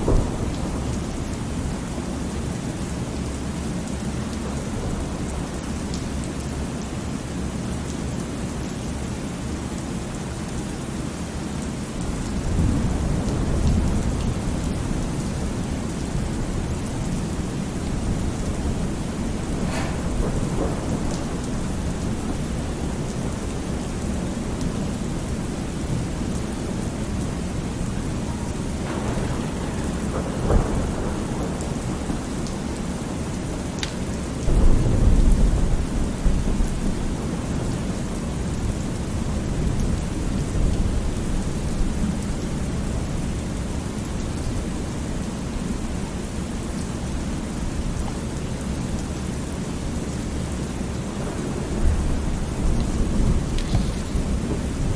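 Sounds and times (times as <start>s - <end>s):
thunder crack: 0.0s - 1.8s, 12.1s - 33.8s, 34.4s - 37.6s, 51.0s - 54.9s
low thunder rumble: 0.0s - 6.2s, 12.0s - 44.8s, 50.4s - 54.9s
heavy rain: 0.0s - 54.9s.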